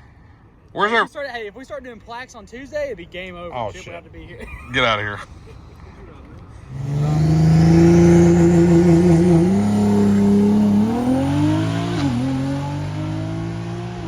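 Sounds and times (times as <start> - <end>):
drag car engine accelerating: 6.7 - 14.0.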